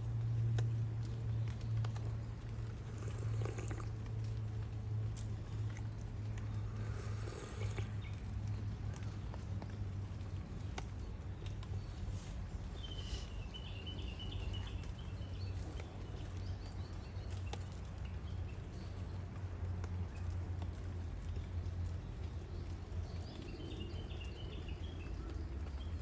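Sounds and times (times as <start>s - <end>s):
faint clicks: 0.0s - 26.0s
low outdoor rumble: 0.0s - 26.0s
bird chirping: 11.0s - 19.2s, 22.0s - 26.0s.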